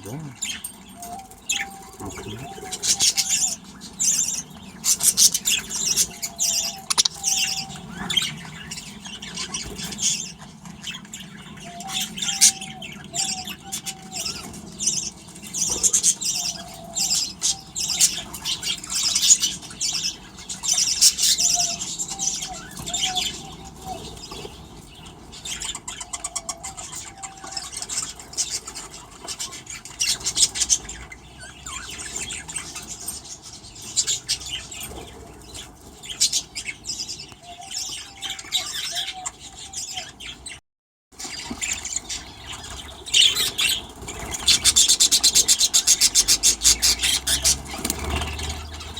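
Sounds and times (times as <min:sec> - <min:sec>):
budgerigars chattering: 0:00.0 - 0:40.6, 0:41.2 - 0:48.9
lower warbling bird call: 0:06.3 - 0:07.9.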